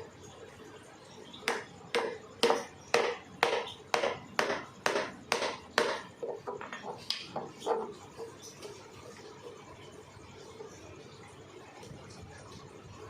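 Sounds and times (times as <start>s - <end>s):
sharp knocks: 1.5s - 6.8s.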